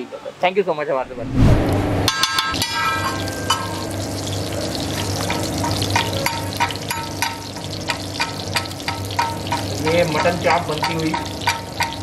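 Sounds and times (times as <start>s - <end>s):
metal spatula clinking on griddle: 2.1s - 3.8s, 5.2s - 12.0s
ghee sizzling and crackling: 2.5s - 12.0s.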